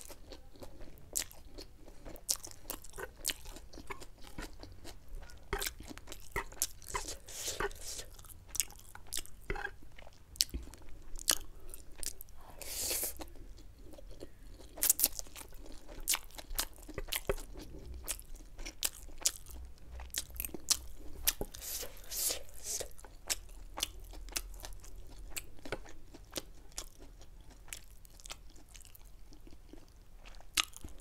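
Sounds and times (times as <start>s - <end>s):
person chewing noodles: 0.0s - 31.0s.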